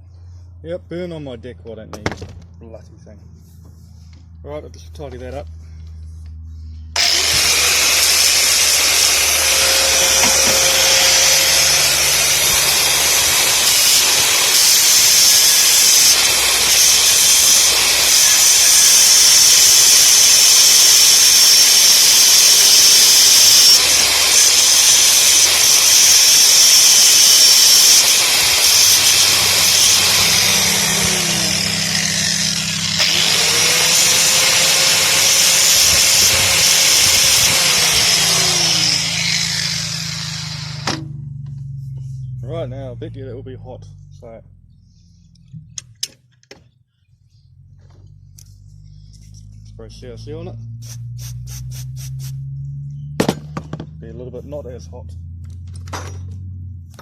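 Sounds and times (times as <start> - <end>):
angle grinder grinding metal: 7.0 - 41.2.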